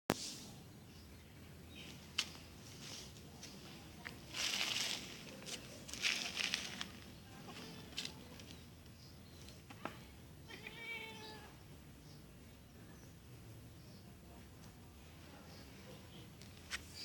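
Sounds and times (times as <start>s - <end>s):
rustling: 1.8s - 8.6s
cat meowing: 10.5s - 11.6s.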